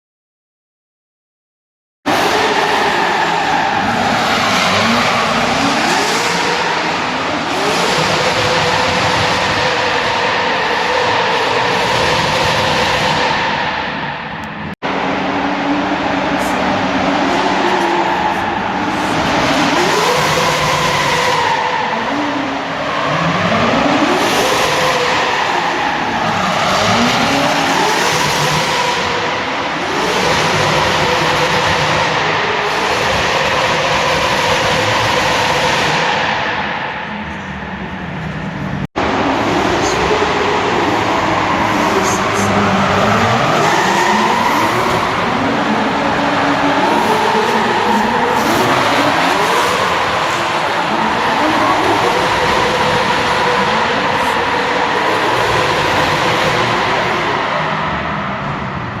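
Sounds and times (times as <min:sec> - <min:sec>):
car engine at high revs: 0:02.1 - 0:59.0.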